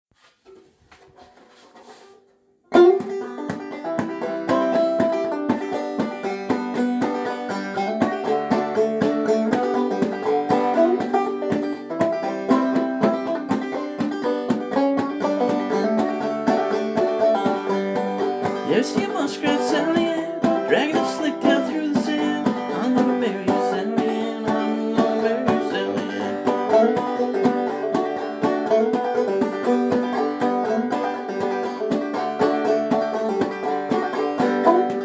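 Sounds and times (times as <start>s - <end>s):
banjo playing: 1.2s - 35.0s.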